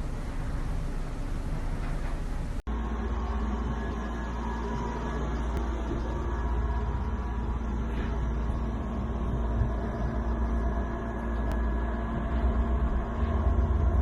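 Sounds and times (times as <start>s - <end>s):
constant hums: 0.0s - 14.0s
low mechanical rumble: 0.0s - 14.0s.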